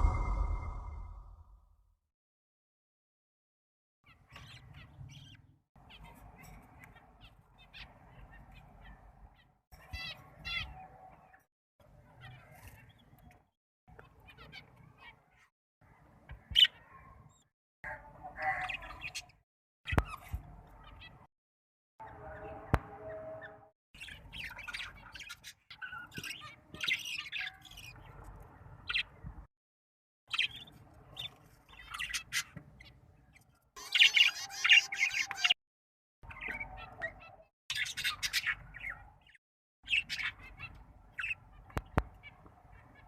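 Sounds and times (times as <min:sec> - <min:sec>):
steady hum: 0:00.0 - 0:01.4
budgies chirping and squeaking: 0:18.5 - 0:21.3, 0:24.0 - 0:29.2, 0:30.3 - 0:35.6, 0:36.3 - 0:43.0
raspy bird calls: 0:33.8 - 0:35.6.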